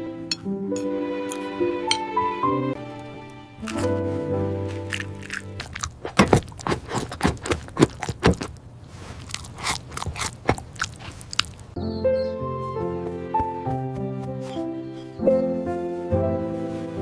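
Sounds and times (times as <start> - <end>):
soft music with held notes: 0.0 - 5.7, 11.8 - 17.0
crunching and chewing: 2.9 - 11.8.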